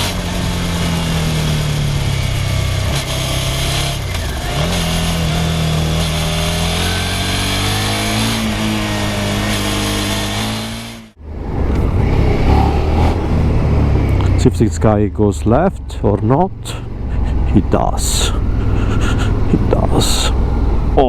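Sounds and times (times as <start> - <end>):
motorcycle engine running: 0.0 - 21.0
wind noise: 11.3 - 14.3.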